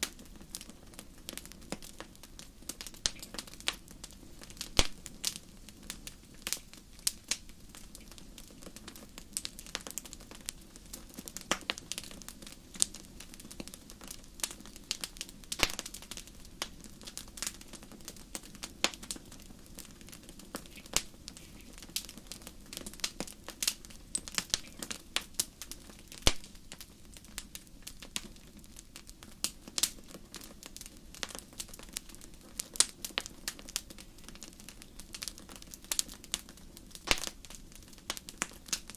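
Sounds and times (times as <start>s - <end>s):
rumble of flames: 0.0s - 38.9s
wood fire crackling: 0.0s - 38.9s.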